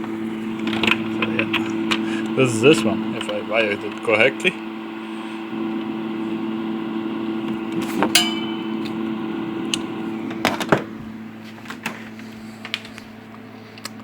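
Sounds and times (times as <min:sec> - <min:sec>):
electrical hum: 0:00.0 - 0:14.0
metallic ring: 0:08.1 - 0:09.2.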